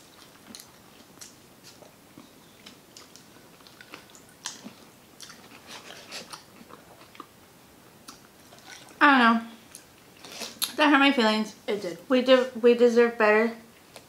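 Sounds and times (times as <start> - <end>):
biting and chewing pizza: 0.1 - 7.4
wet mouth clicks and smacks: 2.6 - 5.5.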